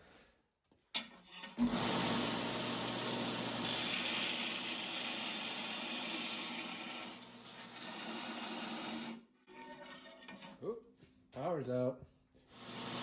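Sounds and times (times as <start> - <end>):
electric grinder grinding steel: 1.6 - 9.2, 12.5 - 13.0.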